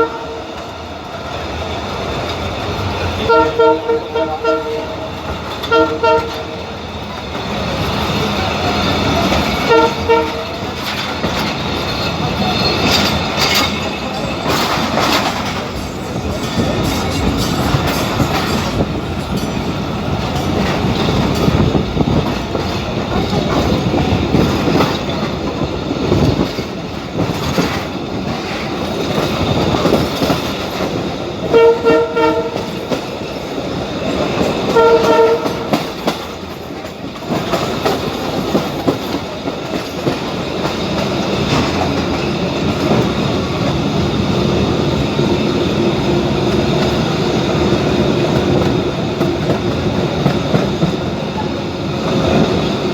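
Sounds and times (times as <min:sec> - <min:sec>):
train horn blasts: 0:00.0 - 0:00.6, 0:03.2 - 0:06.6, 0:09.6 - 0:10.6, 0:31.5 - 0:32.8, 0:34.7 - 0:35.8
train wheels rumbling on track: 0:00.0 - 0:52.9.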